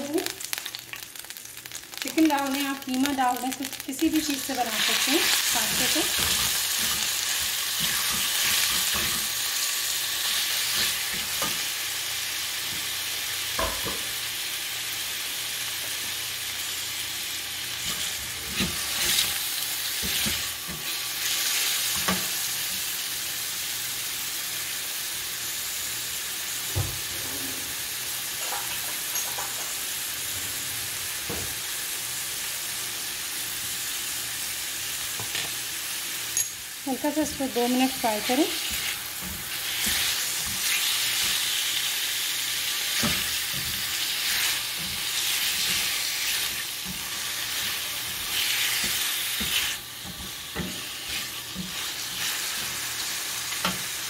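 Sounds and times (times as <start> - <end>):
chicken sizzling in hot oil: 0.0 - 54.0
spatula scraping and knocking pan: 37.3 - 41.4, 42.9 - 52.8.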